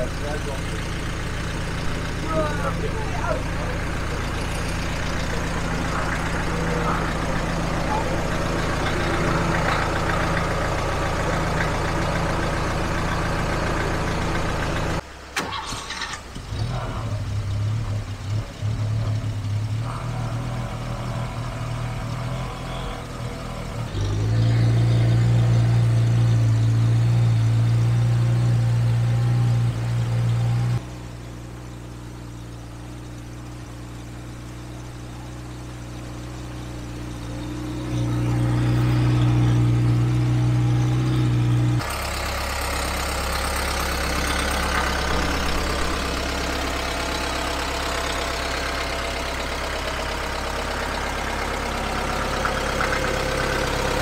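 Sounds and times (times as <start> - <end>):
car engines idling: 0.0 - 54.0.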